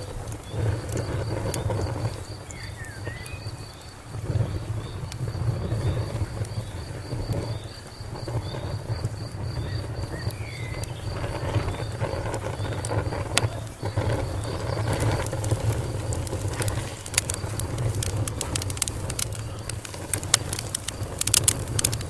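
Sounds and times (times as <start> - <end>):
faint bird calls: 0.0 - 20.0
cricket chirping: 0.0 - 22.0
fire crackling: 0.0 - 22.0.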